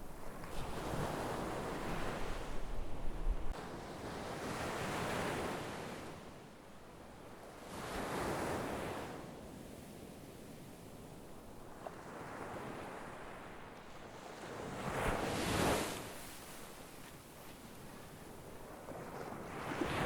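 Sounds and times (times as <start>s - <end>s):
wind rumble on microphone: 0.0s - 20.0s
sea waves breaking on shore: 11.6s - 20.0s.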